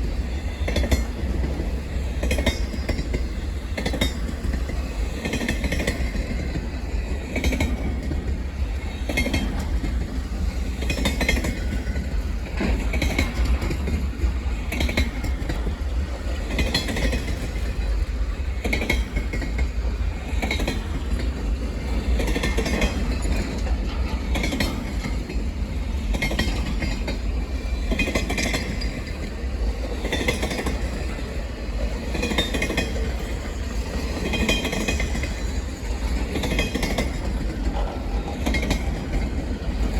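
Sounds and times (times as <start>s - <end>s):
low rumble of freight cars: 0.0s - 39.9s
wheels clicking over rail joints: 0.1s - 39.9s.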